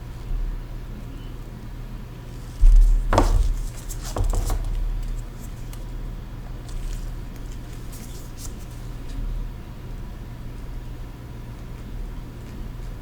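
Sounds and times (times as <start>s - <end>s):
bump on work surface: 2.3s - 5.2s.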